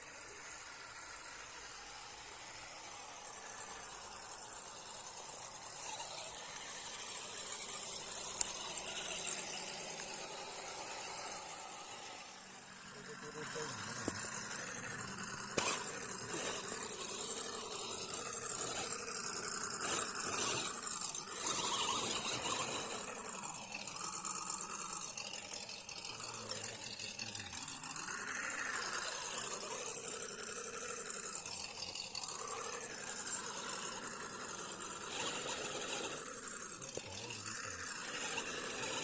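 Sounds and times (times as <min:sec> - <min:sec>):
toy car electric motor whining: 0:00.0 - 0:39.0.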